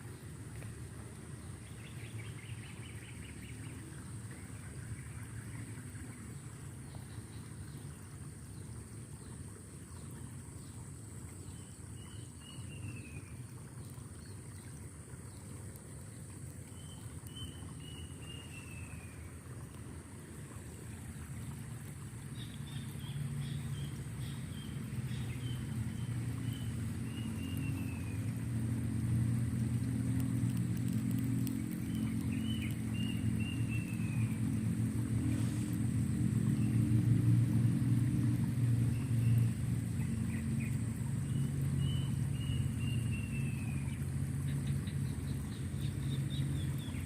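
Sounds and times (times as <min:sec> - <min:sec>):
low engine rumble: 0:00.0 - 0:47.0
songbird chirping: 0:00.1 - 0:15.5, 0:16.7 - 0:19.4, 0:22.2 - 0:28.4, 0:30.1 - 0:34.7, 0:38.9 - 0:47.0.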